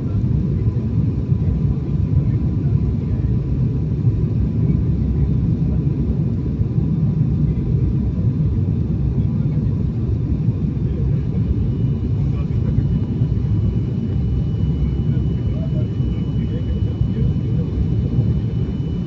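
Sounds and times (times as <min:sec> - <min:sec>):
airliner cabin rumble: 0:00.0 - 0:19.0
faint steady whine: 0:10.9 - 0:19.0.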